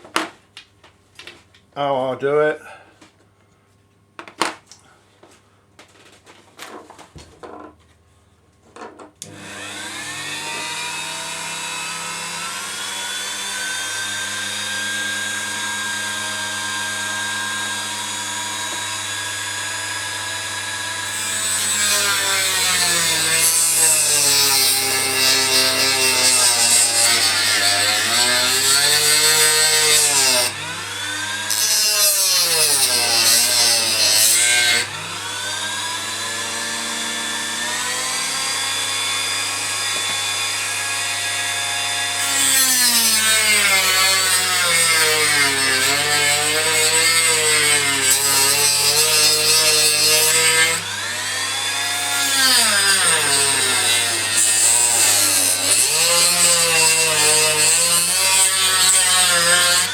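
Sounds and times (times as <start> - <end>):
rotary tool grinding: 21.1 - 30.6, 42.3 - 59.9.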